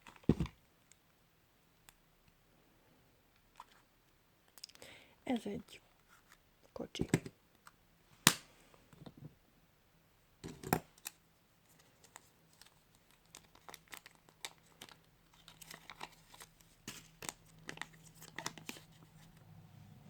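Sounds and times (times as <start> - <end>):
plastic wrapper crinkling: 11.0 - 19.4.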